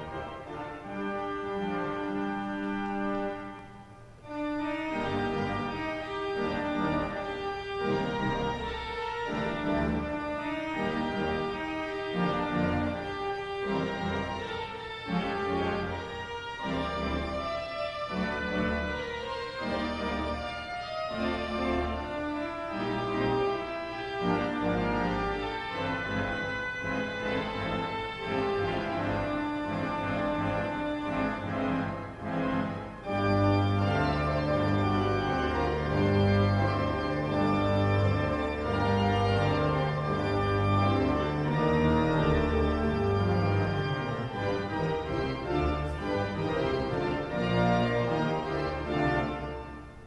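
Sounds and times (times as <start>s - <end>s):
organ music: 0.0s - 50.0s.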